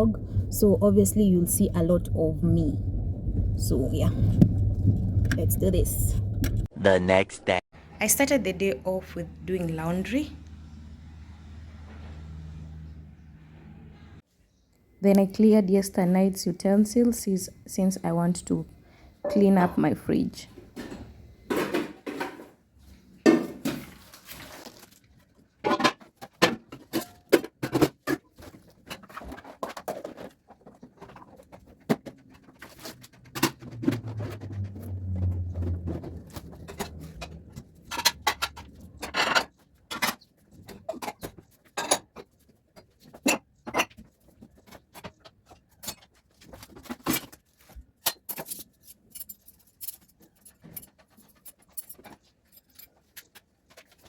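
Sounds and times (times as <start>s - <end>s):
low hum: 0.0s - 6.7s, 33.3s - 39.2s
dishes clinking and clattering: 36.6s - 42.3s, 43.1s - 45.0s.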